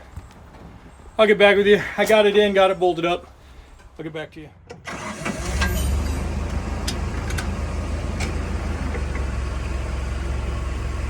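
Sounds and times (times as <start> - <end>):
truck diesel engine running: 4.9 - 11.0.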